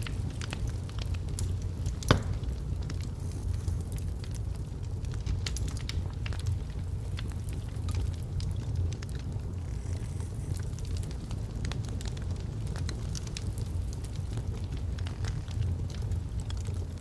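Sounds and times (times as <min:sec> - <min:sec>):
fire crackling and snapping: 0:00.0 - 0:17.0
flames rumbling in fireplace: 0:00.0 - 0:17.0
loud pop from fire: 0:01.3 - 0:03.5.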